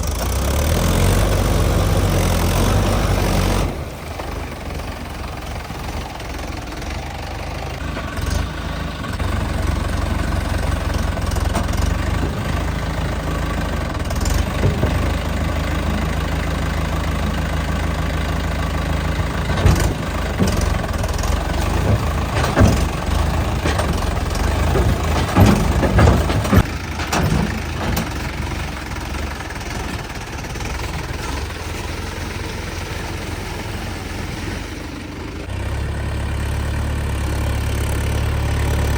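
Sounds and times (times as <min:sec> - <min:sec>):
tractor diesel engine running: 0:00.0 - 0:38.9
sharp knocks and clatters: 0:10.5 - 0:16.4, 0:19.2 - 0:30.1.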